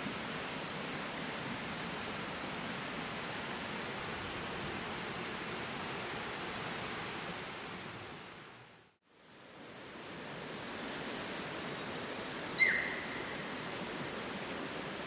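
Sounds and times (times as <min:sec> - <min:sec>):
steady outdoor hiss: 0:00.0 - 0:15.0
faint high bird chirps: 0:12.6 - 0:13.4.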